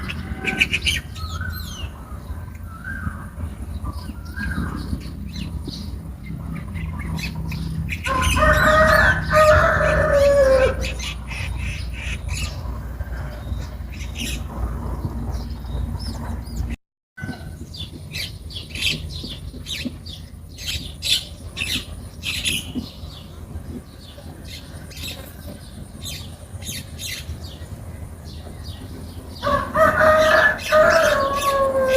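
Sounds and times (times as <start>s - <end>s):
rooster crowing: 8.0s - 11.0s, 29.4s - 31.9s.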